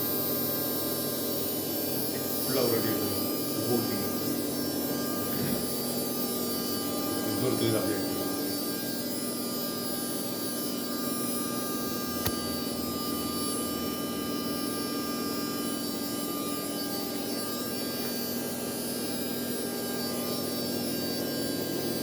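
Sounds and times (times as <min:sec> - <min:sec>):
sharp click: 0:12.2 - 0:12.6.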